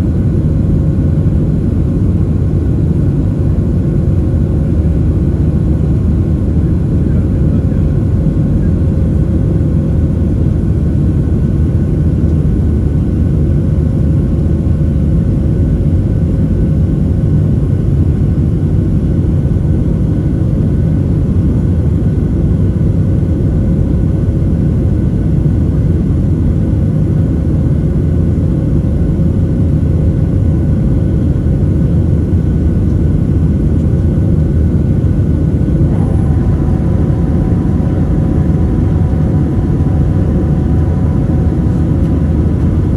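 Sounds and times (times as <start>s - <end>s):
faint constant whine: 0.0s - 42.9s
jet engines and airflow rumble: 0.0s - 42.9s
whining tones: 34.5s - 42.9s.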